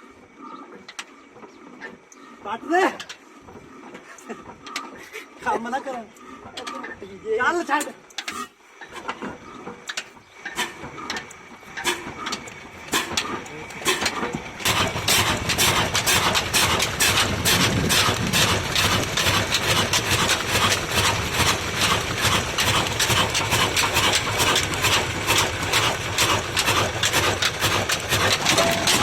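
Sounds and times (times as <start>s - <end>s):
diesel engine knocking: 10.5s - 29.0s.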